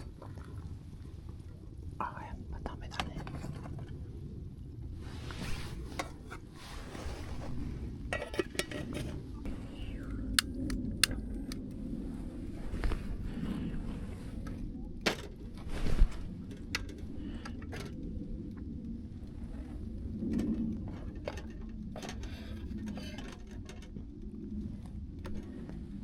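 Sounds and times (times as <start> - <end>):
steady low rumble: 0.0 - 26.0
camp cookware clicks and knocks: 8.1 - 9.2, 10.4 - 11.7.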